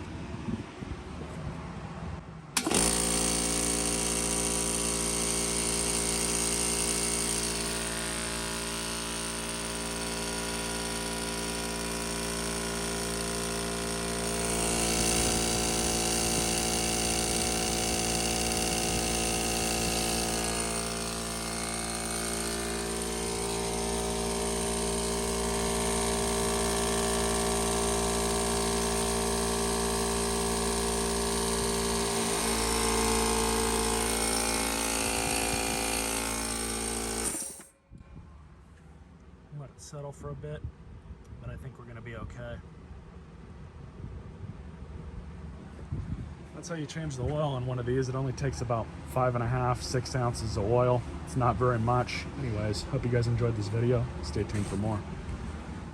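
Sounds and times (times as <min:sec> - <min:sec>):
air compressor running: 0:02.6 - 0:37.8.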